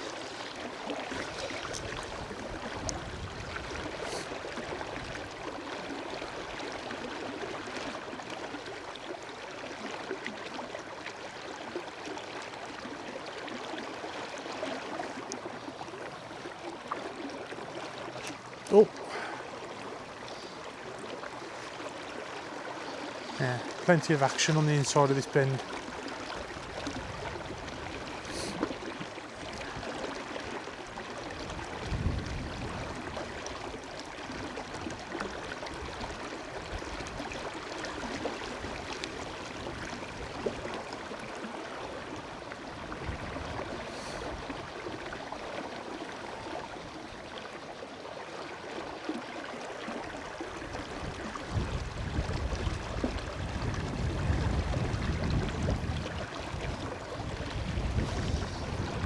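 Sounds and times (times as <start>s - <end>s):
river water flowing: 0.0s - 59.0s
wind rumbling on microphone: 1.2s - 5.5s, 26.4s - 30.0s, 31.0s - 35.1s, 42.7s - 44.9s, 50.6s - 59.0s.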